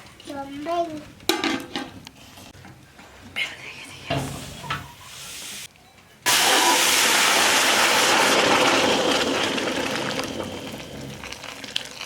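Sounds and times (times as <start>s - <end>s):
pot hissing with steam: 4.2s - 5.7s.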